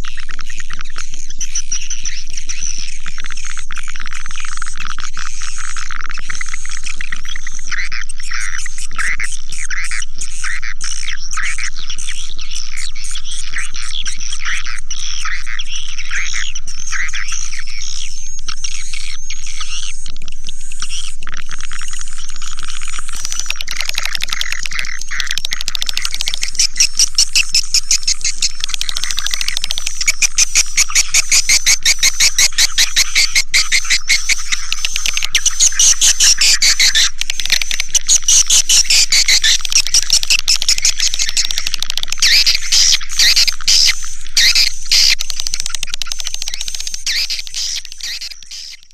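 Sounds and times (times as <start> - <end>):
swiftlets twittering: 16.2 - 48.9.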